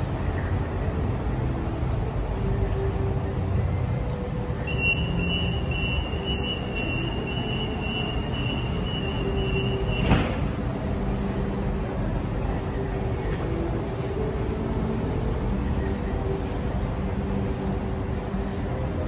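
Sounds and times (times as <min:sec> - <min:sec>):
electric train rumbling: 0:00.0 - 0:19.0
road traffic: 0:00.0 - 0:19.0
high steady tone: 0:03.4 - 0:10.0.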